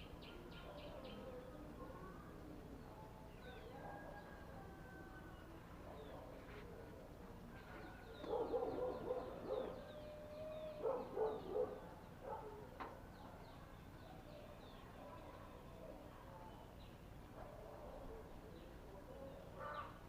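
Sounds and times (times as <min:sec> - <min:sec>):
small birds chirping: 0:05.4 - 0:20.0.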